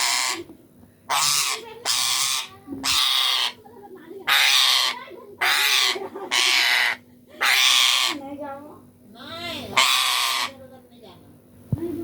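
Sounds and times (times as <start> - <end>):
parrot screeching: 0.0 - 0.5, 1.1 - 3.6, 4.3 - 8.2, 9.6 - 10.6.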